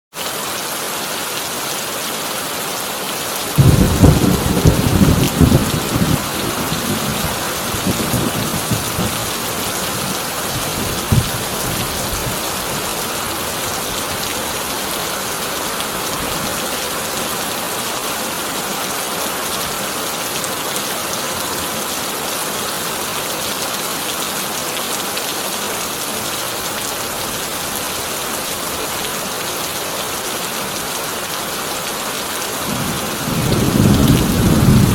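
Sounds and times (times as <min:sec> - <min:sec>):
heavy rain on a tin roof: 0:00.1 - 0:34.9
thunder rumbling: 0:03.6 - 0:14.3, 0:32.7 - 0:34.9.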